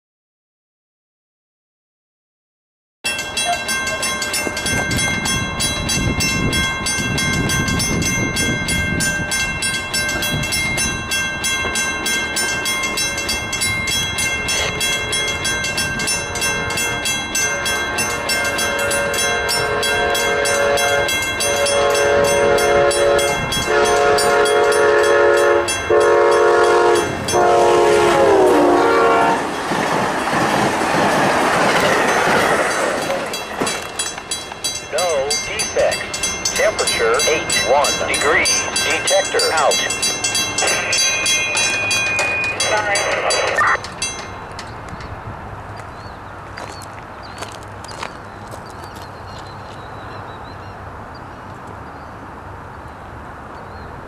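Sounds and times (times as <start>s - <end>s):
crossing bell ringing: 3.0s - 45.2s
train wheels on rails: 3.1s - 50.4s
locomotive horn blasts: 16.2s - 29.4s.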